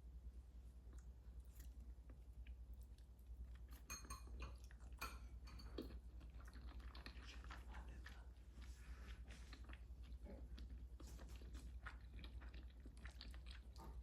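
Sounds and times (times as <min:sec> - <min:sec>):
steady low hum: 0:00.0 - 0:14.0
utensils and dishes clinking: 0:03.8 - 0:05.8.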